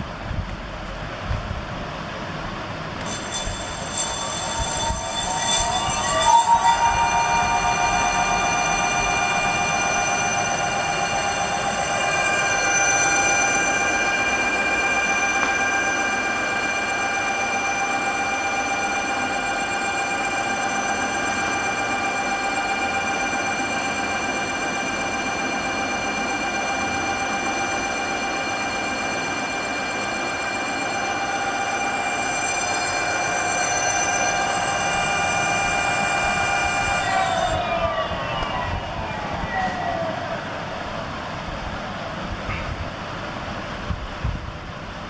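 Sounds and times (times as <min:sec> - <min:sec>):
rushing noise: 0:03.0 - 0:16.6, 0:32.2 - 0:44.2.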